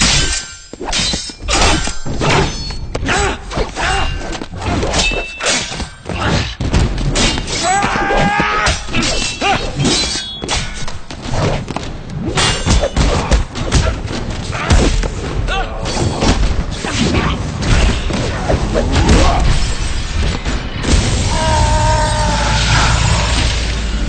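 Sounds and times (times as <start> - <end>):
punches and kicks: 0.0 - 21.4
pained groan: 21.2 - 23.9.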